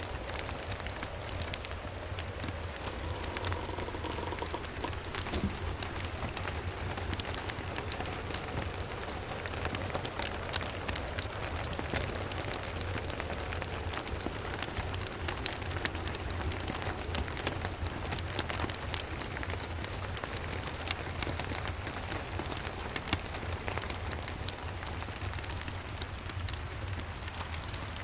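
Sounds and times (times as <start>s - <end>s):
sharp crackles and ticks: 0.0s - 28.0s
steady rain: 0.0s - 28.0s.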